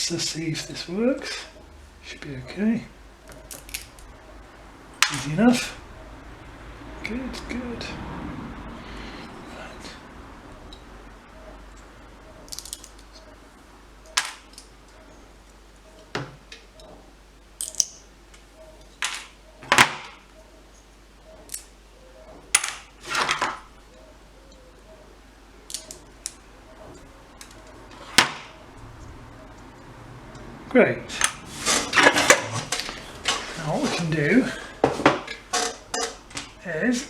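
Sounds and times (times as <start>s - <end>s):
small hard objects clicking: 3.3s - 4.1s, 12.4s - 13.3s, 17.6s - 18.4s, 25.7s - 26.4s.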